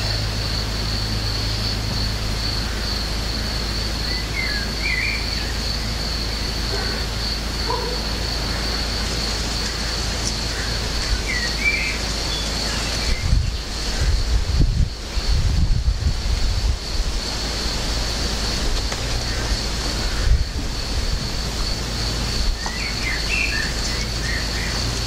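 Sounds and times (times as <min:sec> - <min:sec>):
birds chirping: 0:00.0 - 0:15.1, 0:17.2 - 0:25.0.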